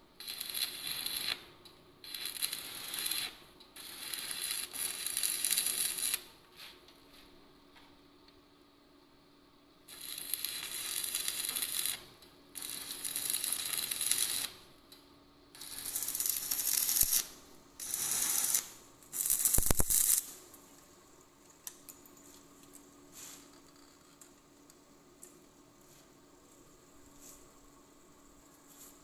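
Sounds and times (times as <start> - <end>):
workshop tool rasping: 2.1 - 6.2, 15.6 - 20.2.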